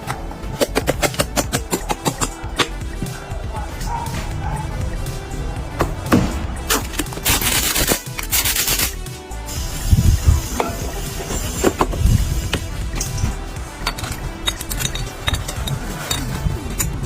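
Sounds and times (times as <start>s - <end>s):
background music: 0.0s - 17.0s
rubbing and scraping: 6.6s - 9.0s.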